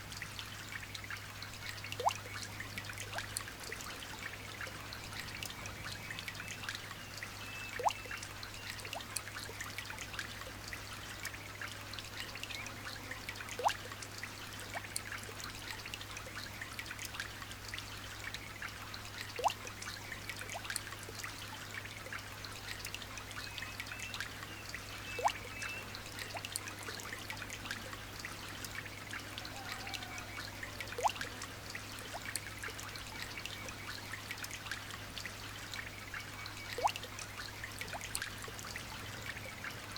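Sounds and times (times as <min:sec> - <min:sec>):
light rain pattering: 0:00.0 - 0:39.9.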